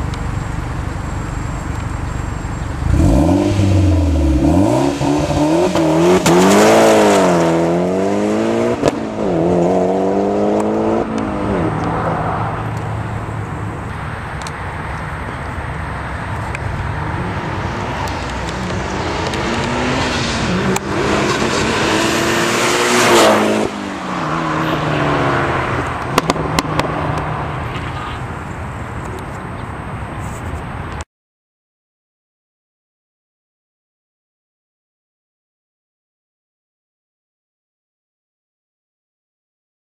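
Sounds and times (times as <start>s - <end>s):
car engine revving: 2.6s - 13.9s, 16.2s - 28.0s.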